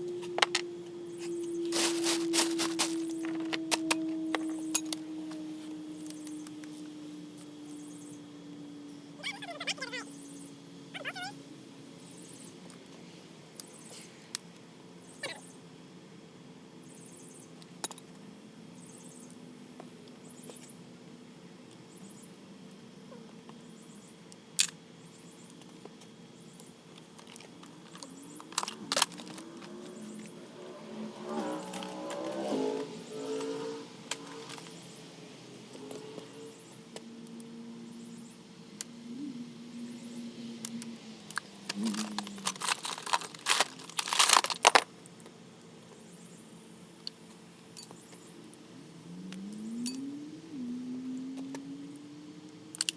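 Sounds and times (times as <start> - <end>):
faint steady hum: 0.0 - 52.9
small metal objects clinking: 1.6 - 5.0, 27.2 - 30.3, 41.3 - 44.8.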